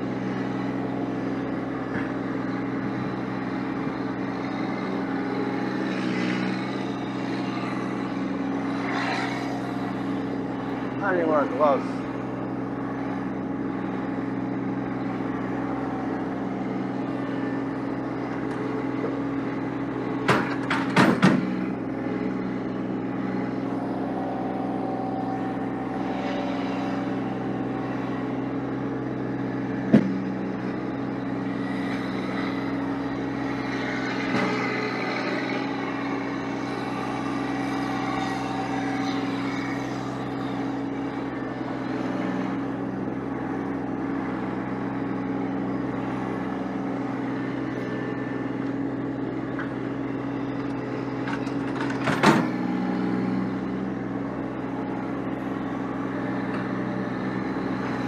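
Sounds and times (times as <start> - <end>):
vehicle engine running: 0.0 - 58.0
sharp clicks and knocks: 20.2 - 21.5.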